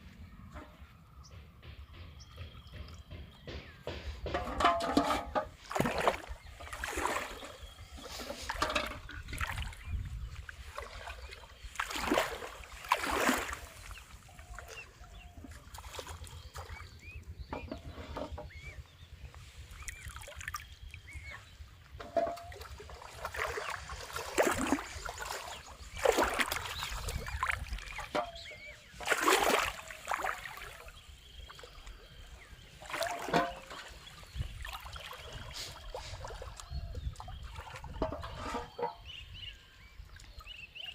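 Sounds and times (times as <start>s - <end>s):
water splashing and sloshing: 0.2s - 40.9s.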